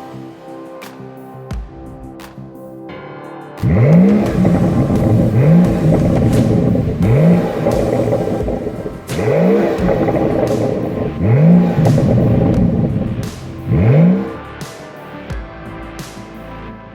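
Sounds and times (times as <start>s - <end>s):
car engine revving: 3.6s - 14.5s.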